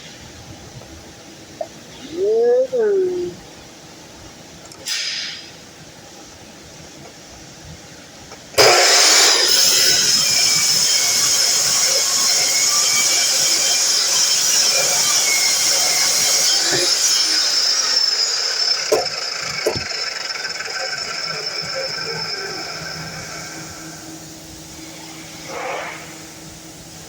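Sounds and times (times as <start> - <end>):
miter saw running with high whine: 8.6 - 27.0.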